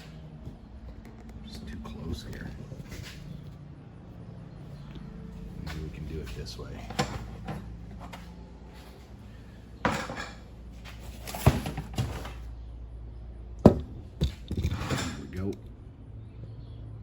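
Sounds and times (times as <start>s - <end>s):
low steady hum: 0.0s - 17.0s
hard objects knocking and clattering: 13.6s - 15.6s.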